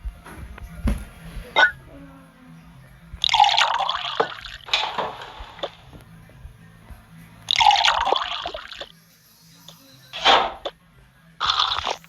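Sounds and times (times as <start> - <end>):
liquid pouring and splashing: 3.2 - 5.9, 7.5 - 8.9, 11.4 - 12.0.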